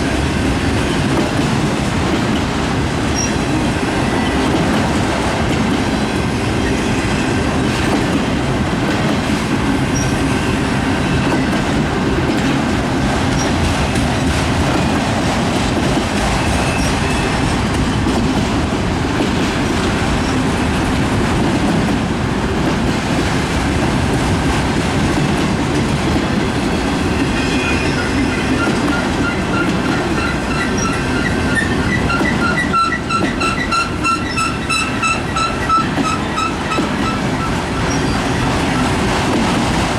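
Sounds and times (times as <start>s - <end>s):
freight train wheels clattering: 0.0s - 39.9s.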